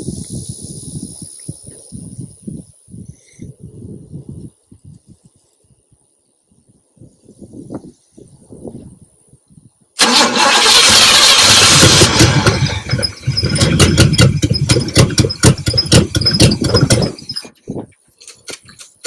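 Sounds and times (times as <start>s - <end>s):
car engine cranking and sputtering: 10.0s - 17.6s, 18.2s - 19.0s.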